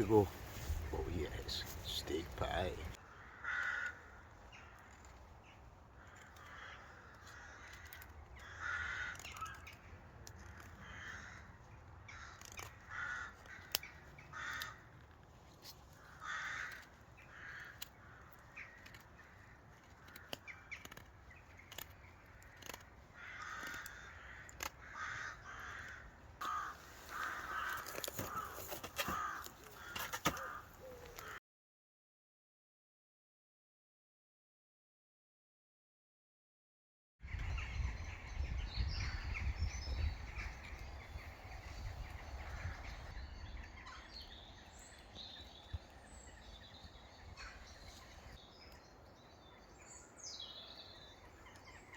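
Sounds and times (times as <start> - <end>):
crows cawing: 2.4 - 31.4, 40.1 - 48.4.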